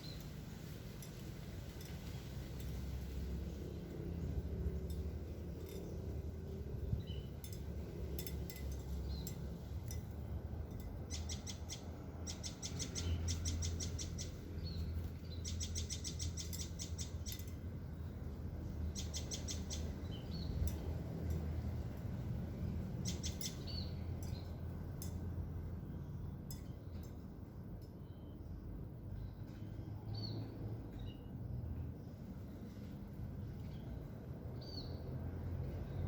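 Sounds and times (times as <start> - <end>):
bird chirps: 11.0 - 18.1, 18.9 - 20.8, 23.0 - 24.6.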